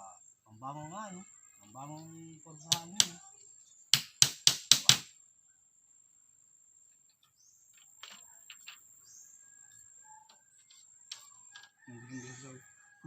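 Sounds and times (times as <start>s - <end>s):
faint bird chirps: 0.0s - 3.9s, 5.2s - 13.0s
tool striking bamboo: 2.7s - 3.2s, 3.9s - 5.1s.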